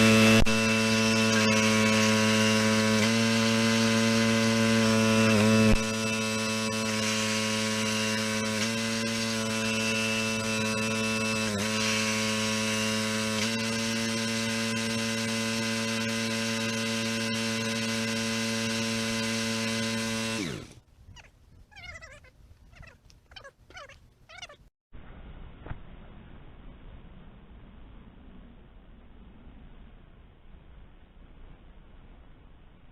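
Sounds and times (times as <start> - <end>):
log splitter motor running: 0.0 - 20.8
faint chirping calls: 21.1 - 24.6.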